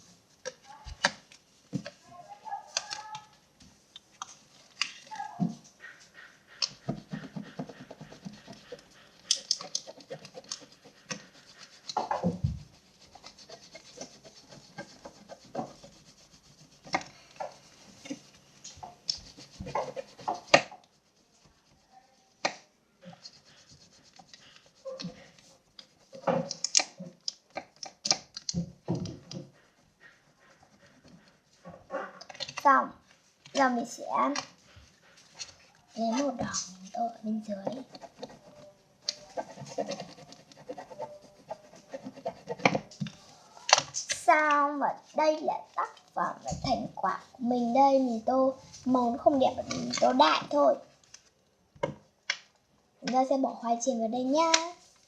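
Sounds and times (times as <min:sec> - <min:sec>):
crayon scratching on paper: 0:05.1 - 0:28.3, 0:28.9 - 0:32.7, 0:33.5 - 0:50.9.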